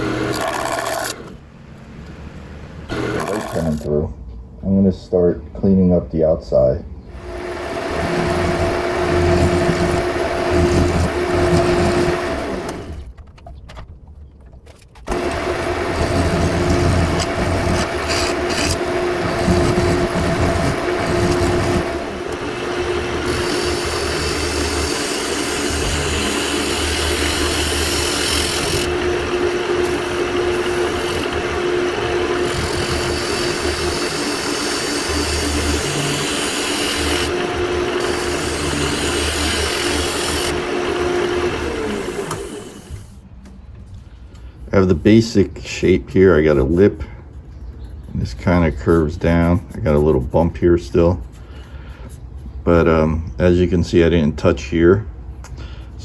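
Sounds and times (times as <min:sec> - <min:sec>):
lathe motor hum: 0:00.0 - 0:03.9, 0:07.1 - 0:13.1, 0:15.1 - 0:43.2
tool scraping spinning wood: 0:00.0 - 0:03.9, 0:07.1 - 0:13.7, 0:14.5 - 0:43.2, 0:44.5 - 0:54.6.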